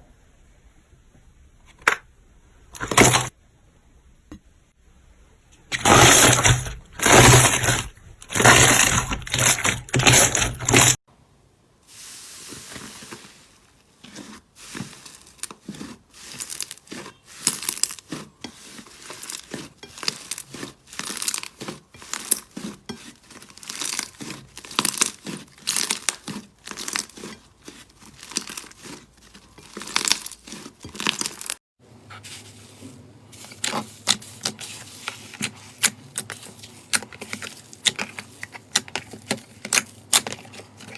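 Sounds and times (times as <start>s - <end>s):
slime crackling and popping: 19.0s - 31.6s.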